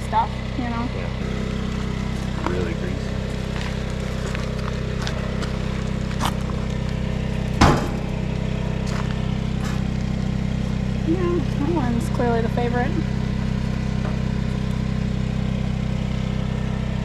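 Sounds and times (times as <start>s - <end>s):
portable generator humming: 0.0s - 17.0s
loud knock: 7.6s - 8.1s.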